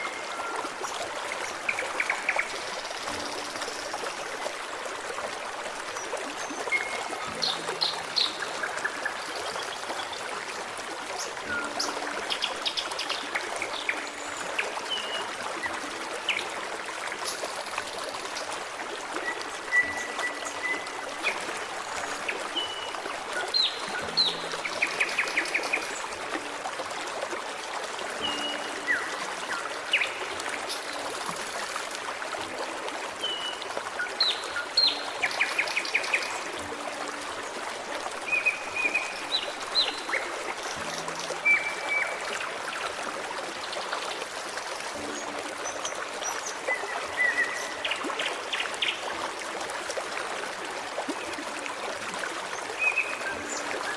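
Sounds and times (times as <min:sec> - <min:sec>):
stream trickling and splashing: 0:00.0 - 0:53.9.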